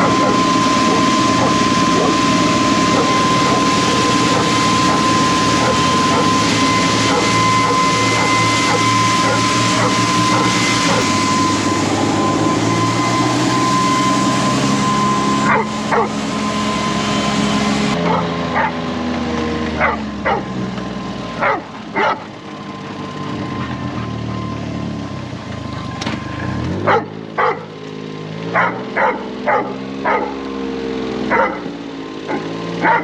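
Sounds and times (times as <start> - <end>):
high-pitched tone: 0.0 - 18.9
vehicle engine running: 0.0 - 33.0
dog barking: 2.9 - 5.0, 5.6 - 6.4, 7.0 - 10.6, 15.4 - 16.2, 18.0 - 18.8, 19.8 - 20.5, 21.4 - 22.3, 26.8 - 27.7, 28.5 - 30.4, 31.3 - 33.0.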